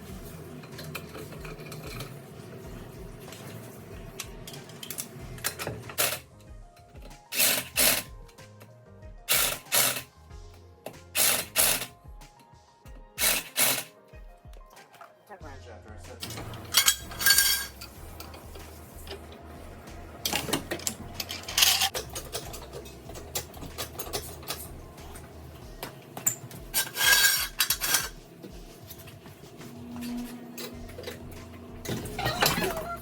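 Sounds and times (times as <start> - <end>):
metal tools clinking and rattling: 0.6 - 2.2, 16.2 - 19.4, 20.2 - 25.3, 26.2 - 29.0, 30.0 - 33.0.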